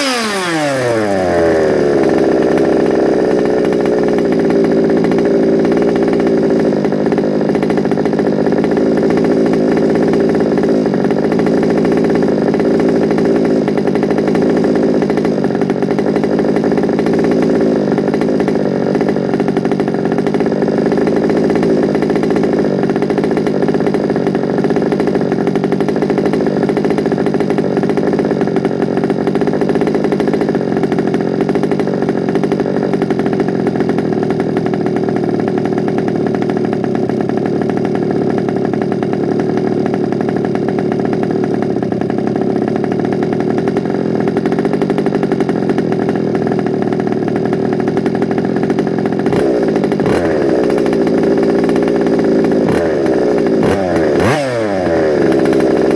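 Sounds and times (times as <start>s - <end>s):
small two-stroke engine buzzing: 0.0s - 55.9s.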